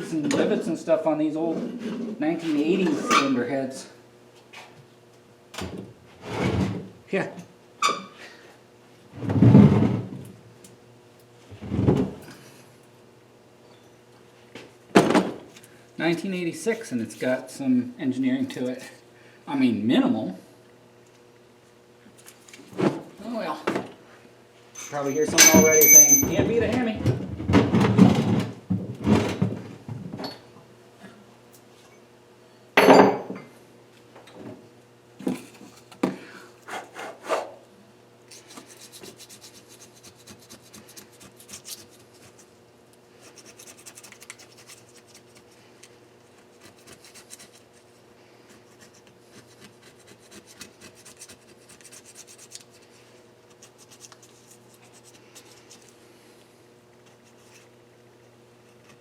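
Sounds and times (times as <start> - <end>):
sharp knocks of metal parts: 24.8 - 26.6.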